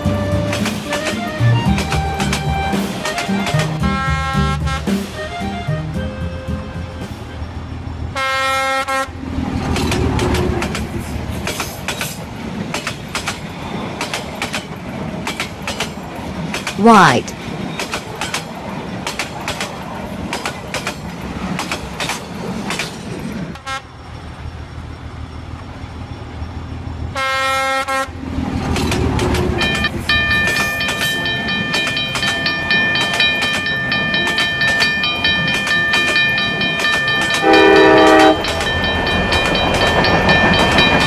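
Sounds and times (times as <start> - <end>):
wheels clattering over rail joints: 0.0 - 4.2, 9.2 - 16.8, 17.4 - 23.6, 28.2 - 41.0
train rumble: 0.0 - 41.0
train horn blast: 3.8 - 5.0, 8.2 - 9.1, 23.6 - 23.9, 27.2 - 28.1, 37.4 - 38.8
crossing warning bell ringing: 29.4 - 41.0.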